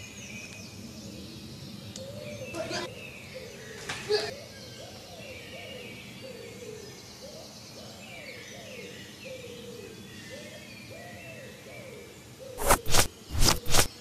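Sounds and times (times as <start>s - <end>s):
sharp sparring hits: 12.6s - 13.9s.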